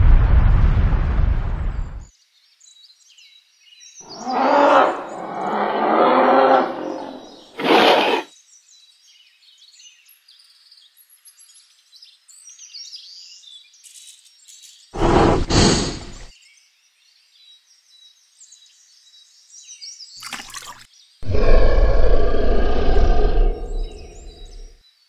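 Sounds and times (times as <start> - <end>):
rumbling eruption blast: 0.0 - 2.1, 15.0 - 16.3, 21.2 - 24.7
faint bird chirping: 2.2 - 20.2, 21.0 - 25.0
dinosaur roar: 4.1 - 8.3, 15.0 - 16.3, 21.2 - 24.8
short sharp burst: 15.0 - 16.3.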